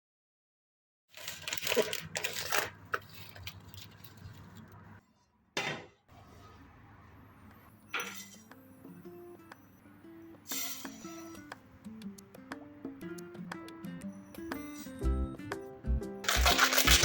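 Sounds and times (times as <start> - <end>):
kitchenware clinking and clattering: 5.6 - 6.0, 8.0 - 8.5, 16.3 - 17.0
soft plucked instrumental music: 8.5 - 17.0.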